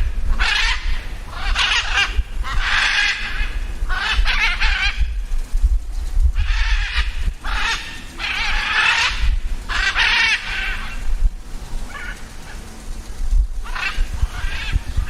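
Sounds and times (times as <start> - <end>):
birds harsh wavering calls: 0.0 - 15.0
low rumble: 0.0 - 15.0.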